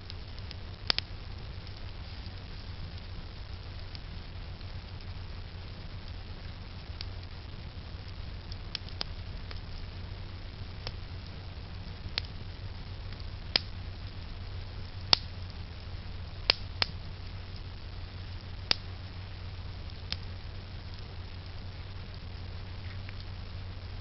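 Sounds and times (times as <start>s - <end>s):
campfire wood popping and cracking: 0.0s - 24.0s
low fire rumble: 0.0s - 24.0s.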